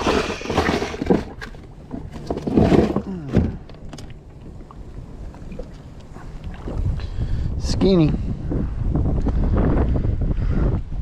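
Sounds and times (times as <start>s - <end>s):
kayak handling knocks and scrapes: 0.0s - 6.9s
wind rumble on microphone: 0.0s - 11.0s.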